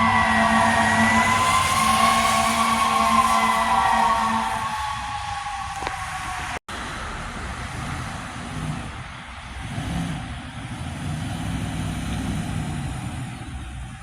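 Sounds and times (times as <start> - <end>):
siren: 0.0 - 6.6
road noise: 0.0 - 14.0
vehicle engine rumbling: 0.0 - 14.0.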